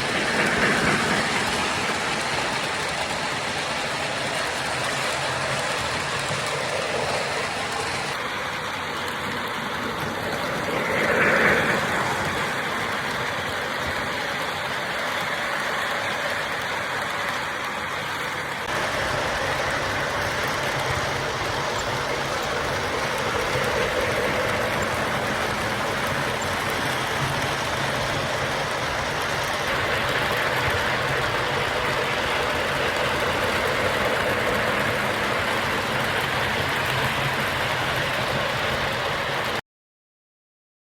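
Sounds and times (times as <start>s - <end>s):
model trains rolling rumble: 0.0s - 39.6s.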